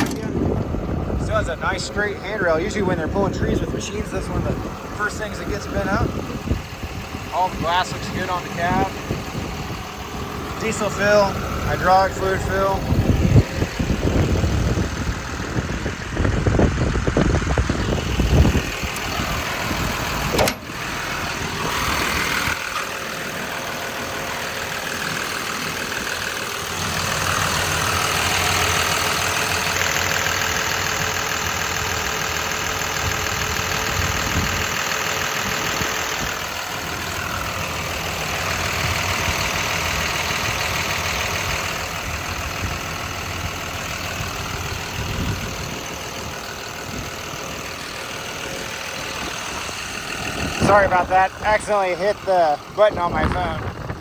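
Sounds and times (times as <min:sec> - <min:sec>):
sharp click: 0:00.0 - 0:00.4, 0:20.3 - 0:20.8
diesel engine idling: 0:00.0 - 0:54.0.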